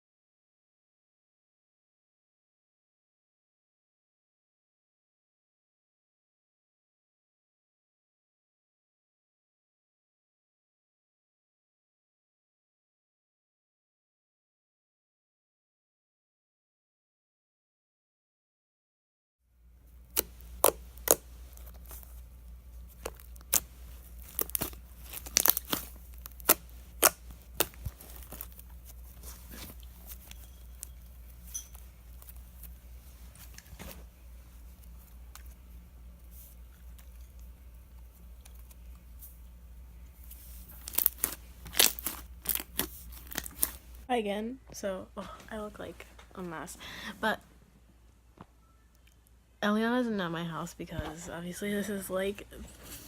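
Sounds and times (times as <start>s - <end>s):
slime squishing: 20.0s - 35.6s, 40.1s - 44.0s
slime popping and crackling: 20.1s - 22.1s, 22.9s - 29.1s, 40.7s - 43.9s.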